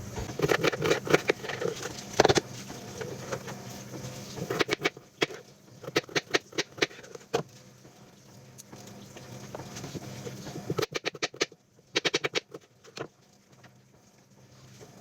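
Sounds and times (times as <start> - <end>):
knife chopping bread: 0.1 - 2.5.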